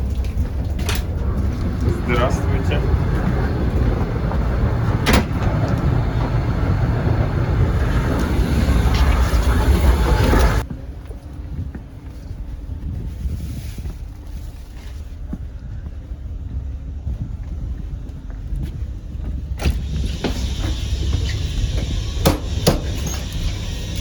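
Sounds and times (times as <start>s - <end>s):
low train rumble with clicks: 0.0s - 24.0s
train wheels rushing: 0.0s - 24.0s
carriage door shutting: 0.8s - 2.8s, 3.8s - 9.3s, 19.6s - 24.0s
door opening with sharp knocks: 4.6s - 6.4s, 21.9s - 23.4s.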